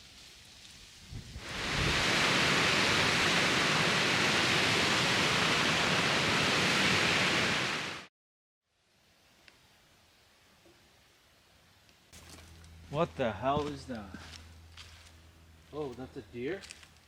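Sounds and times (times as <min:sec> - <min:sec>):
rush of falling water: 0:01.4 - 0:08.1.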